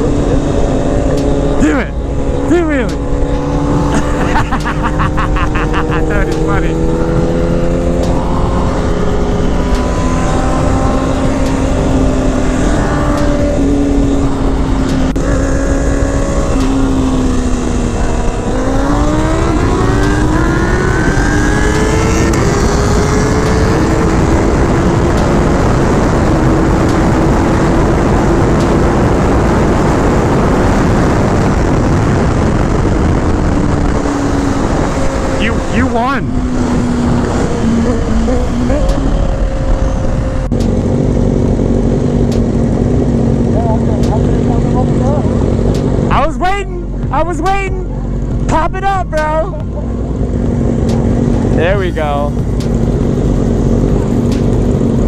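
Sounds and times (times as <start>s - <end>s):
wind rushing: 0.0s - 43.5s, 44.2s - 55.0s
motorcycle engine accelerating: 0.0s - 55.0s.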